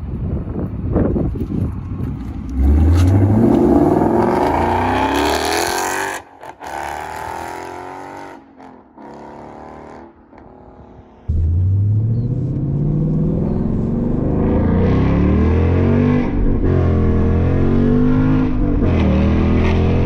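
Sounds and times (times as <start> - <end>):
car engine accelerating hard: 2.4 - 8.4, 11.3 - 20.0.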